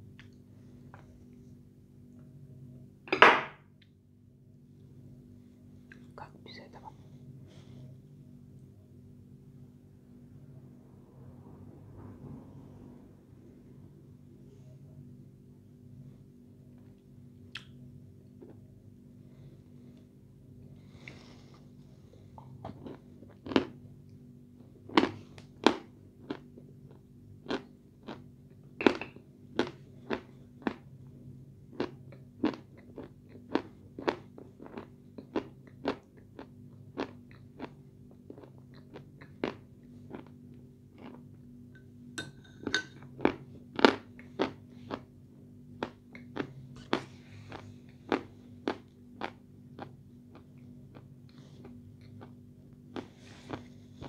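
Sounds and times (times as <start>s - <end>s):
crunching and chewing clay: 22.2s - 23.8s, 24.6s - 41.5s, 43.0s - 54.0s.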